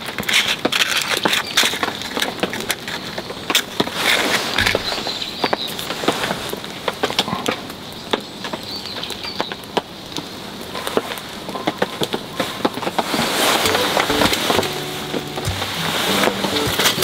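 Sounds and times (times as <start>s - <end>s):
light rain pattering: 0.0s - 17.0s
raindrops ticking close by: 5.4s - 17.0s.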